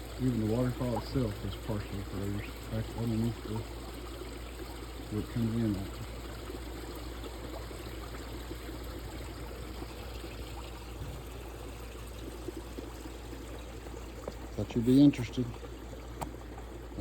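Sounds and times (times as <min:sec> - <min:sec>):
pond waterfall running: 0:00.0 - 0:17.0.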